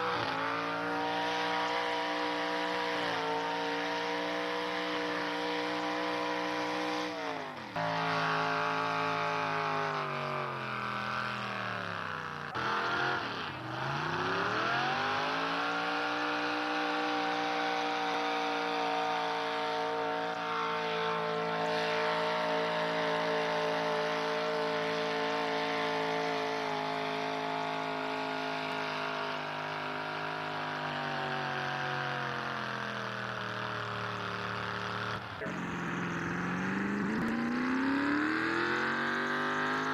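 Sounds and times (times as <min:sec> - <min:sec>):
truck engine at high revs: 0:00.0 - 0:39.9.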